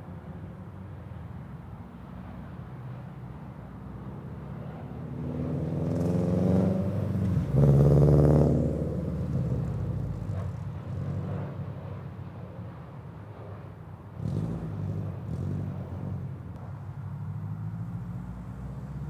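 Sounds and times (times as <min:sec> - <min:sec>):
car exhaust passing by: 0:05.1 - 0:11.2, 0:14.2 - 0:16.4.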